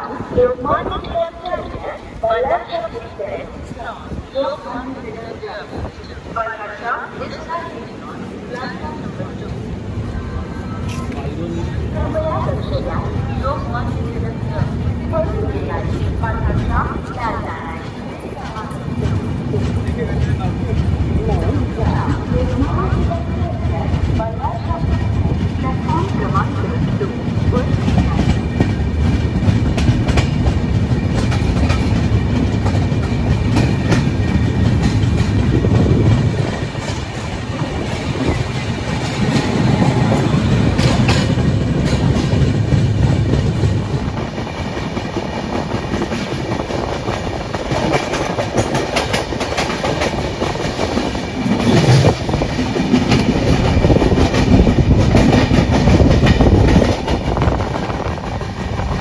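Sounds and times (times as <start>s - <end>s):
train rumble: 0.0s - 59.0s
train wheels clattering over rail joints: 15.8s - 59.0s.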